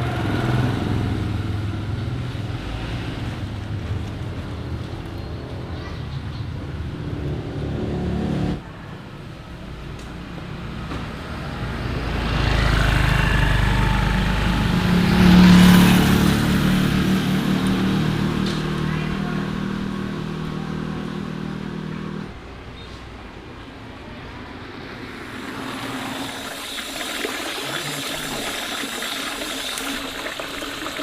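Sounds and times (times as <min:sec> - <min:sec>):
vehicle engine passing by: 0:06.6 - 0:08.9, 0:10.6 - 0:22.7, 0:23.4 - 0:31.0.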